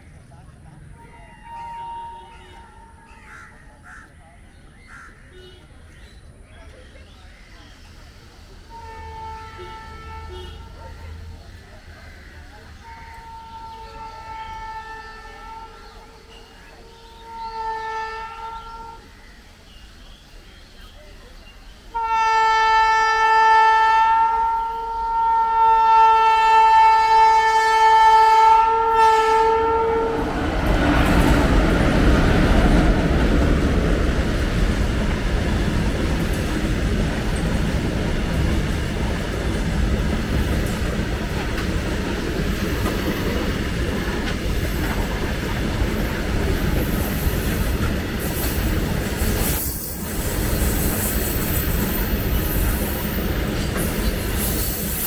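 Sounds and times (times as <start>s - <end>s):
locomotive horn blast: 1.2s - 3.0s, 8.7s - 11.2s, 12.8s - 19.2s, 21.9s - 31.4s
freight train rushing past: 7.2s - 55.0s.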